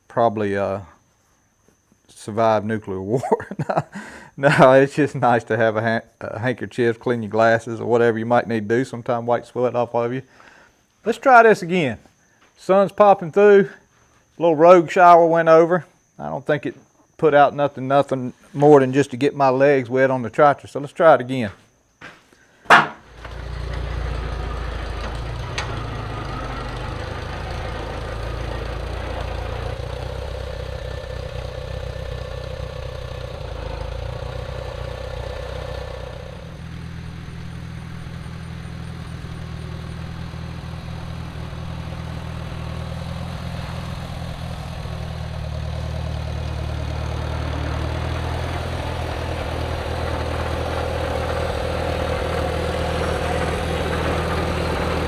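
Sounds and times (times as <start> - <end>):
engine whine: 22.7 - 55.0
tractor engine running: 22.7 - 55.0.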